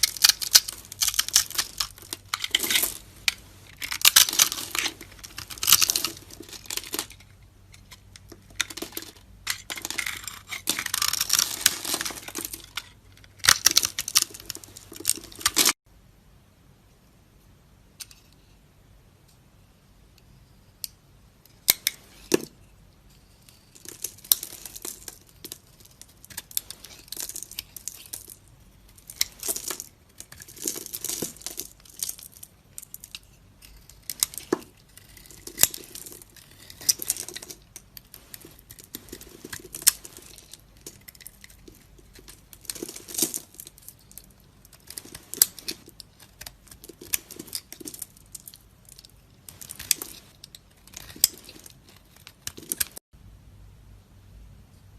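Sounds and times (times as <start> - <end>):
knife cutting soap: 33.6 - 37.7.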